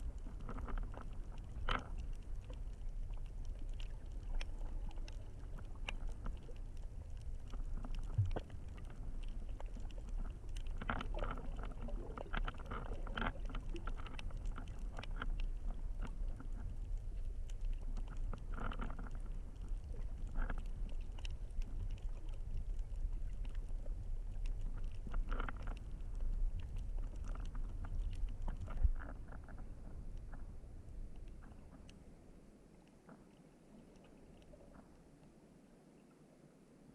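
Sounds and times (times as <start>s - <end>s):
steady low underwater rumble: 0.0s - 36.1s
water sloshing and crackling: 0.0s - 36.9s.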